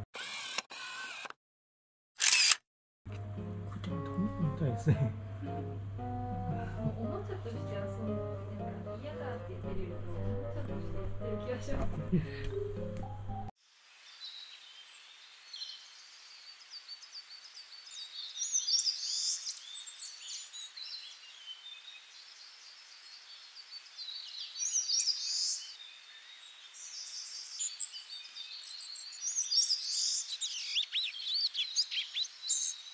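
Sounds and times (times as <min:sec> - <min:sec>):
small songbirds chirping: 0:14.0 - 0:32.9.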